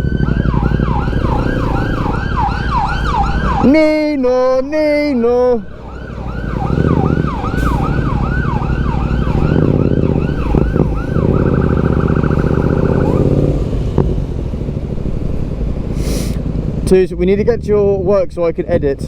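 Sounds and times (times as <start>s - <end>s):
emergency siren yelping: 0.0s - 15.0s
low engine rumble: 0.0s - 19.0s.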